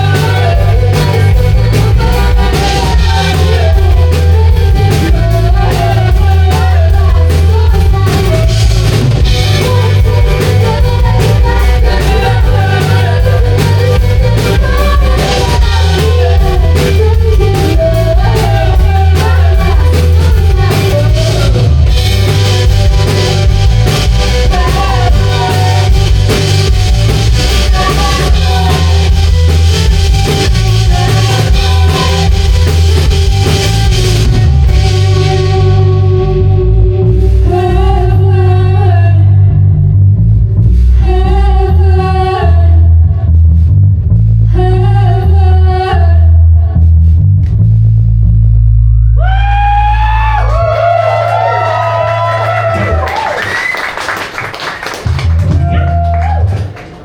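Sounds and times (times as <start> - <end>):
live rock band playing: 0.0 - 38.0
person singing: 0.0 - 39.7.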